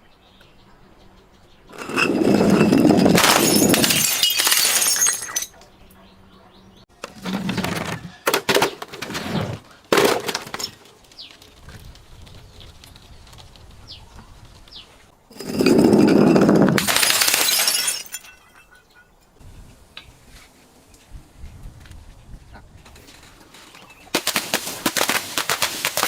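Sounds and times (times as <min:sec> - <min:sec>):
glass bottles smashing: 0:01.8 - 0:05.5, 0:15.4 - 0:18.7.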